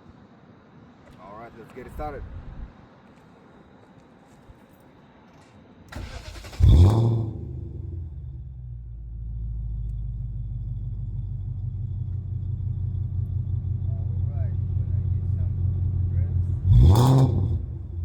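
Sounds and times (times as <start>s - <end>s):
car engine starting and idling: 5.9s - 18.0s.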